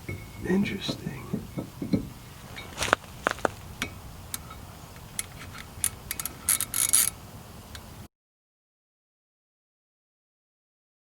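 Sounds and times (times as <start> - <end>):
scraping and rattling: 1.8 - 7.2
metal parts clicking and clinking: 5.2 - 7.2.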